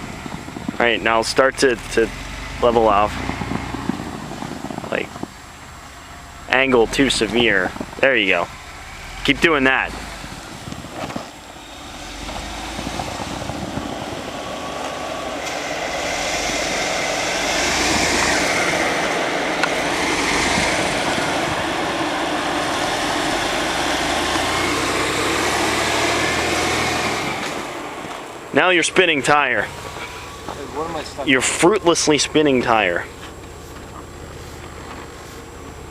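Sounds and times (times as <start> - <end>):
car engine revving: 0.0 - 35.9.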